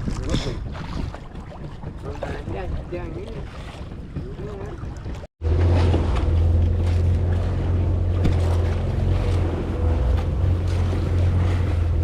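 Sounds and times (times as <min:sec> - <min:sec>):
wind on microphone: 0:00.0 - 0:05.3
boat engine humming: 0:00.0 - 0:12.0
sea water noise: 0:00.0 - 0:12.0.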